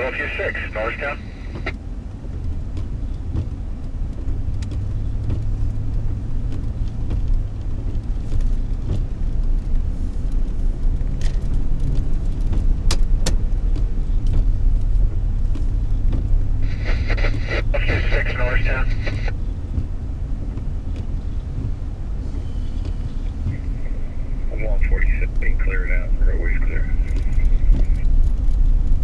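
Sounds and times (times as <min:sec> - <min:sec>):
car engine and tyres rumbling: 0:00.0 - 0:29.0.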